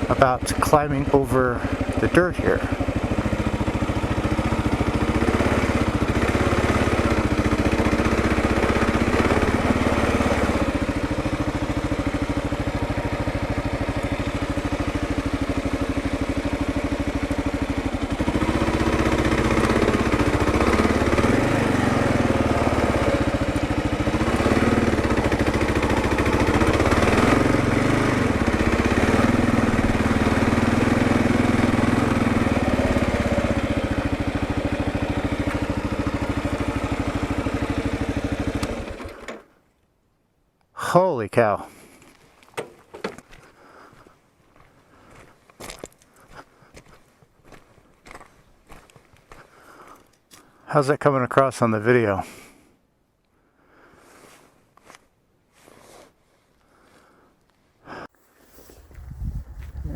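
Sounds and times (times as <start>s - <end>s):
motorcycle engine revving: 0.0s - 39.5s.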